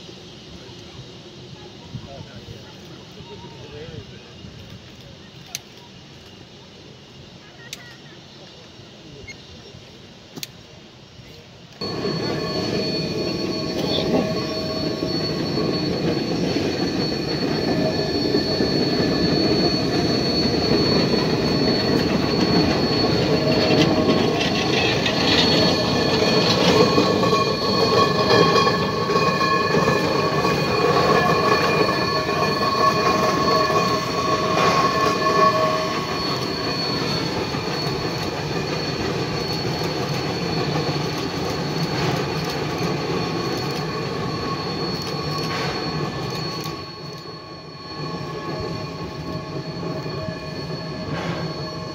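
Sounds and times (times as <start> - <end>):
train rumble: 0.0 - 51.9
steel wheels squealing: 11.8 - 51.9.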